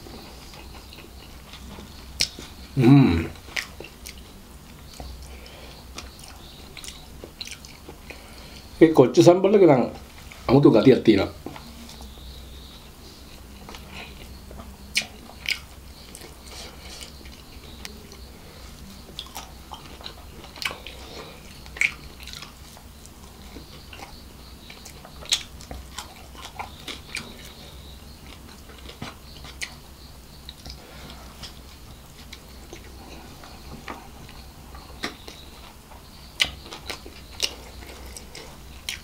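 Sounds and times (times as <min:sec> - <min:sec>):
low steady hum: 0:00.0 - 0:39.0
chewing with mouth sounds: 0:00.1 - 0:08.7, 0:11.4 - 0:39.0
lip smacks and clicks: 0:36.4 - 0:39.0.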